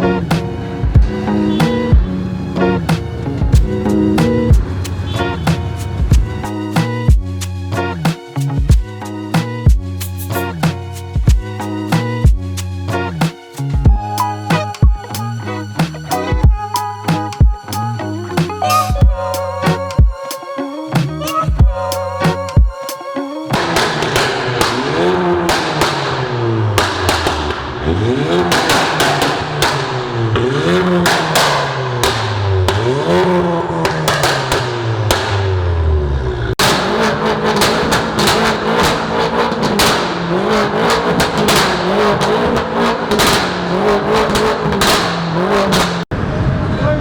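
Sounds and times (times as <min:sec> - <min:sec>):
car engine revving: 0:00.0 - 0:09.6, 0:23.5 - 0:46.9
sharp cracks: 0:23.5 - 0:27.7, 0:28.3 - 0:33.1, 0:33.8 - 0:35.5, 0:36.6 - 0:46.1.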